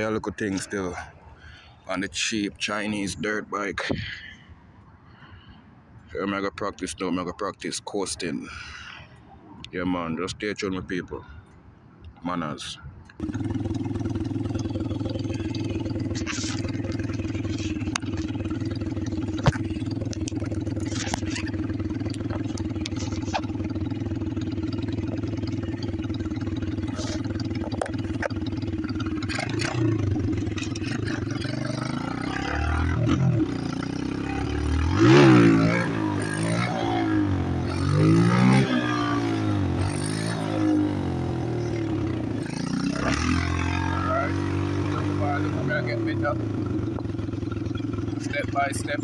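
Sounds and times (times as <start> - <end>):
motorcycle engine idling and revving: 13.2 - 49.0.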